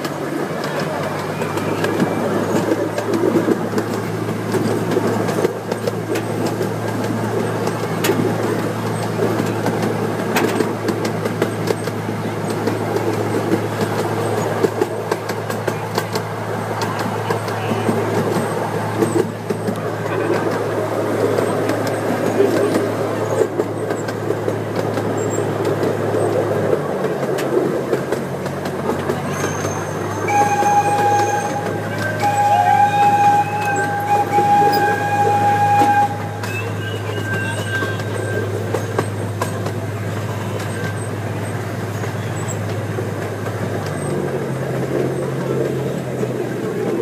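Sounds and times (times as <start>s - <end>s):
train rumble and hum: 0.0s - 47.0s
steady high tone: 30.2s - 38.6s.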